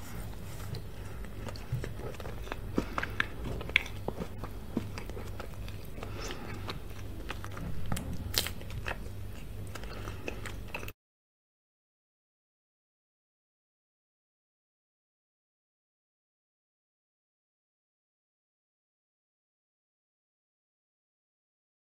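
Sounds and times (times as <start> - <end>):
chewing cake: 0.0 - 11.0.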